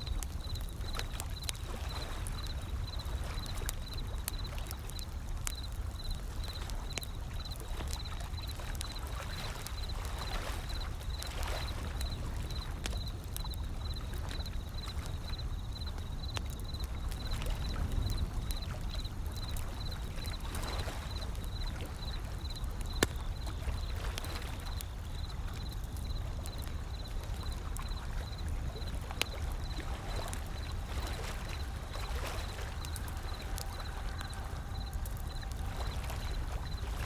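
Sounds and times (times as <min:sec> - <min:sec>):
wood fire crackling: 0:00.0 - 0:37.0
ocean waves rolling in: 0:27.0 - 0:37.0.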